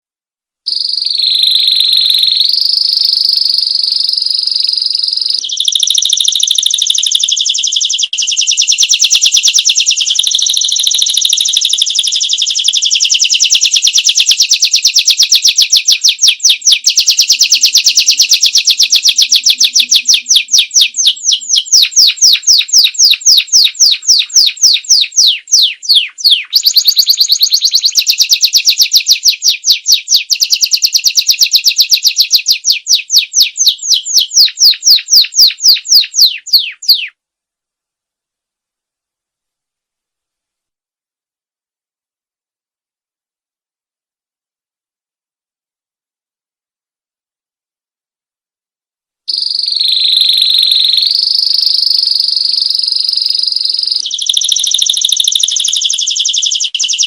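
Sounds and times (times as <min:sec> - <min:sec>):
canary singing trills: 0:00.7 - 0:37.2, 0:49.3 - 0:57.0.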